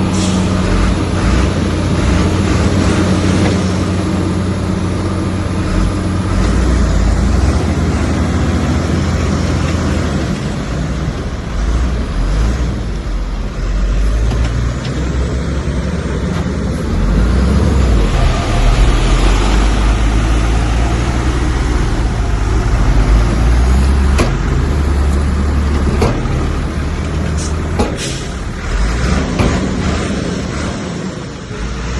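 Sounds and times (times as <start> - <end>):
heavy diesel engine drone: 0.0 - 31.9
sharp knocks: 27.7 - 28.1.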